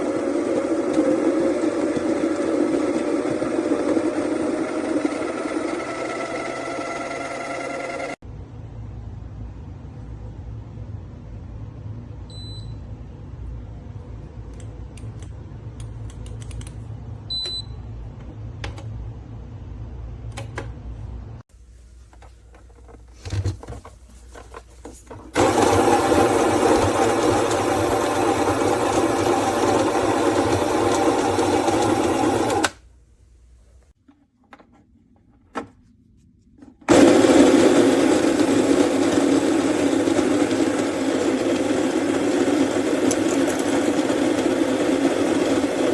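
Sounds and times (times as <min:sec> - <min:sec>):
coffee grinder motor running: 0:00.0 - 0:08.2, 0:25.4 - 0:32.7, 0:36.9 - 0:45.9.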